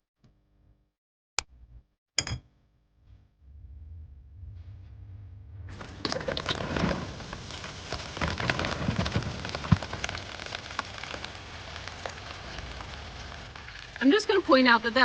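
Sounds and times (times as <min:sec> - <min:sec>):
vegetables sizzling in frying pan: 0:05.8 - 0:15.0.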